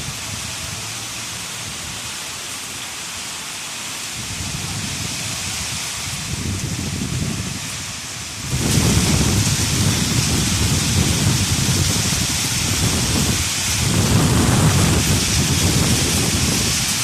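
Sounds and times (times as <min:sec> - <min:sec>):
strong wind: 0:00.0 - 0:02.2, 0:04.1 - 0:17.0
heavy rain and hail: 0:00.0 - 0:17.0
heavy low rumble: 0:04.2 - 0:17.0.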